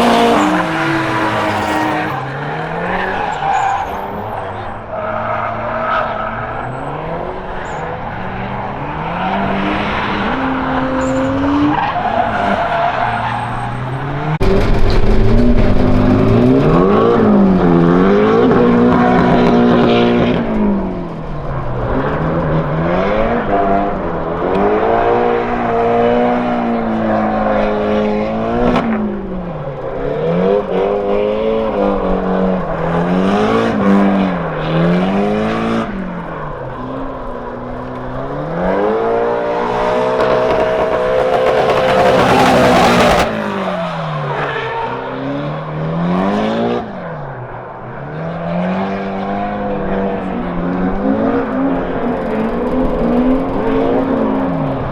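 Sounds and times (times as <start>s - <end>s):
tyres squealing: 0.0s - 14.9s, 38.8s - 45.0s
car engine revving: 0.0s - 54.9s.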